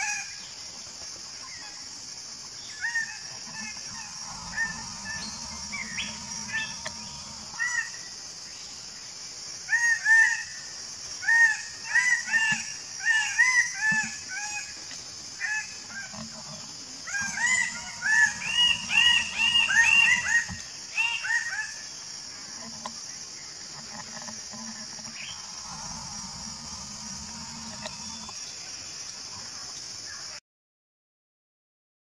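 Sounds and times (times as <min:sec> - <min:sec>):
bird honking calls: 0:02.9 - 0:07.9, 0:17.1 - 0:21.4.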